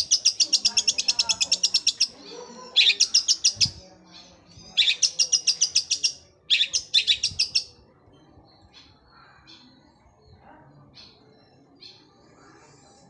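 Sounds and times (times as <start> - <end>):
shrike singing rapid trills: 0.0 - 3.8, 4.6 - 7.7.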